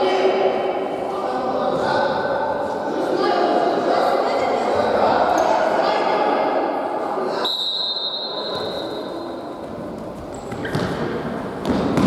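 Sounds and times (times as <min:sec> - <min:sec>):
sports hall noise: 0:00.0 - 0:12.0
referee's whistle blast: 0:07.4 - 0:09.0
ball thudding on court: 0:11.6 - 0:12.0.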